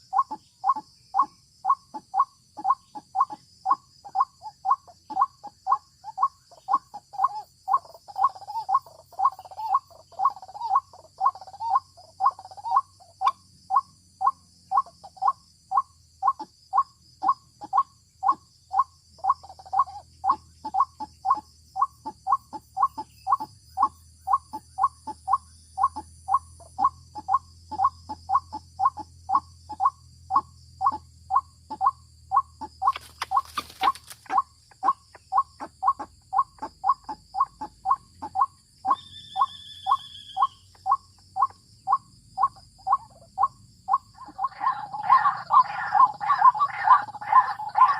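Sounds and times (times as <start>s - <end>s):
waterhen harsh calls: 43.9s - 47.9s.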